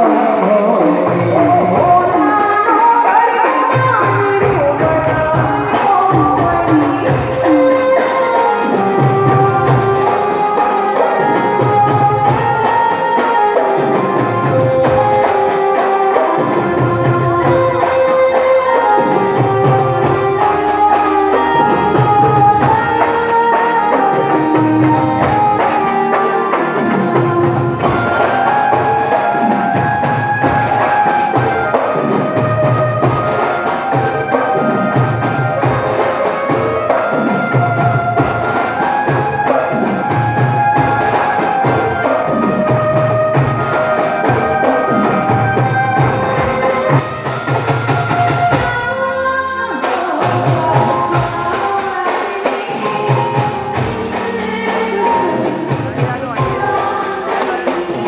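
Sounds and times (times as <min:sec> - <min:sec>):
steady drum beat: 0:00.0 - 0:58.0
bamboo flute melody: 0:18.6 - 0:51.5.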